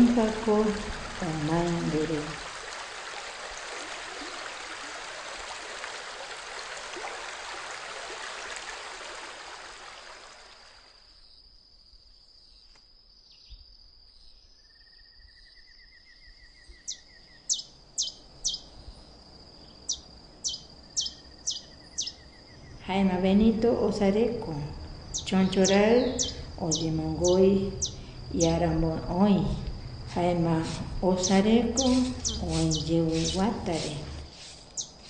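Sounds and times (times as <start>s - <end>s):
high insect drone with trills: 10.1s - 35.0s.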